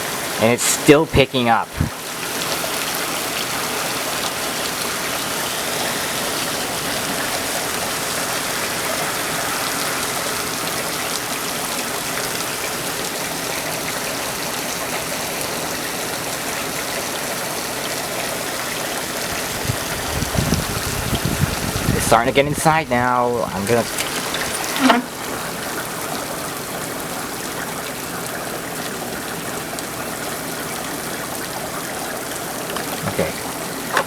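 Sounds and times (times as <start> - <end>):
heavy rain downpour: 0.0 - 34.0
water gushing off gutters: 0.0 - 34.0.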